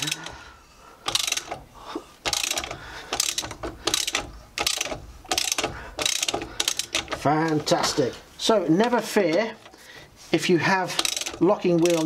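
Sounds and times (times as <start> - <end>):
ratchet wrench clicking: 1.0 - 1.6, 2.2 - 7.3, 11.0 - 12.0.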